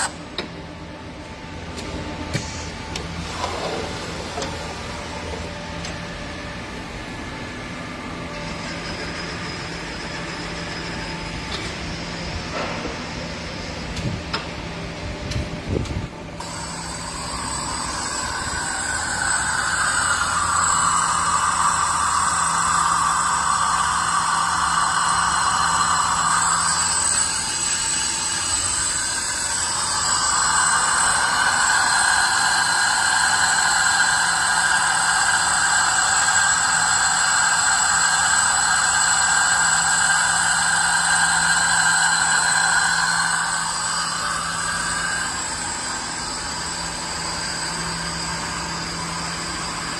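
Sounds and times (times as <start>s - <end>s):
milling machine humming and whining: 0.0s - 49.9s
high-pitched hiss: 16.4s - 49.9s.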